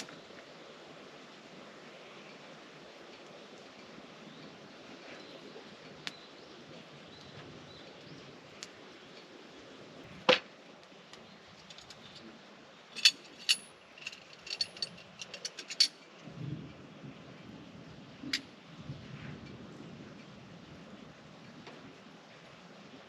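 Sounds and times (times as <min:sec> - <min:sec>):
metallic clicks and clinks: 0:11.6 - 0:12.3, 0:12.9 - 0:16.2.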